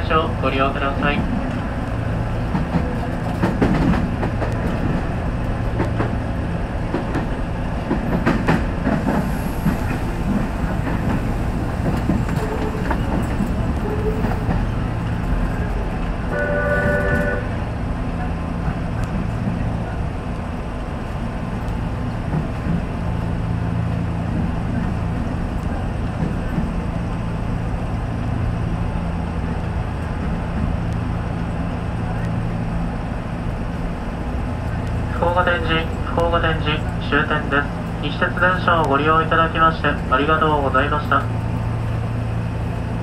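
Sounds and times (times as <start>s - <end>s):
wheels rumbling on rail: 0.0s - 43.0s
train horn tone: 16.3s - 17.7s.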